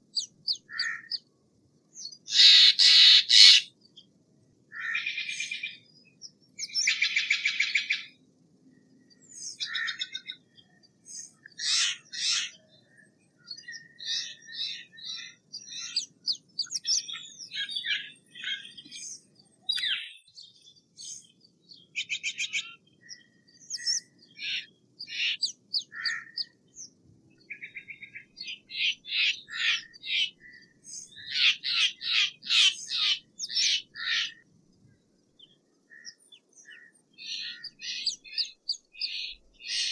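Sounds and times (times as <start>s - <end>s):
jay harsh calls and chirps: 2.3s - 3.7s, 37.4s - 39.9s.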